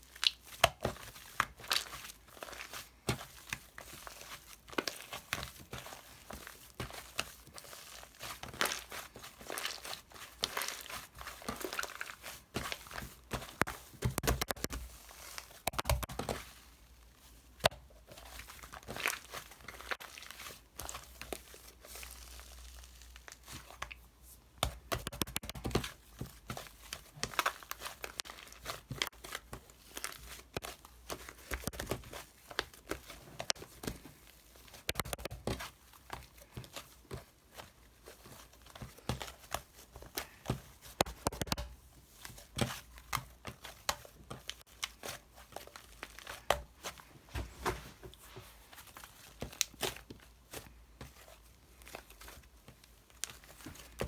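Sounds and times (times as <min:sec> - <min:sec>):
crinkling and rustling: 0:00.0 - 0:54.0
sharp clicks and snaps: 0:13.6 - 0:14.8, 0:15.6 - 0:16.2, 0:24.9 - 0:25.7, 0:34.9 - 0:35.4, 0:41.0 - 0:41.7.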